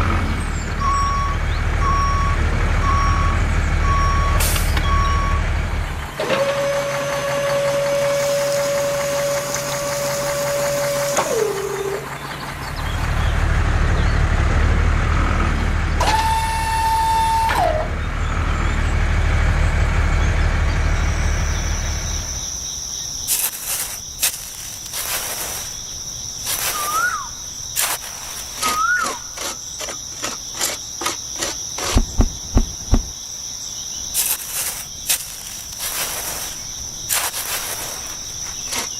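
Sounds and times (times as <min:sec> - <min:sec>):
truck engine running: 0:00.0 - 0:33.2, 0:34.1 - 0:38.9
crickets chirping: 0:20.3 - 0:38.9.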